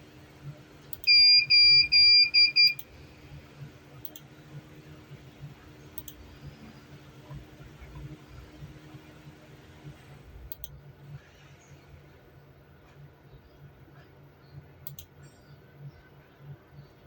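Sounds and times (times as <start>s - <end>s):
electronic beeper beeping: 1.1s - 2.8s
faint clicks: 4.0s - 4.3s, 5.9s - 6.2s, 10.5s - 10.8s, 14.8s - 15.6s.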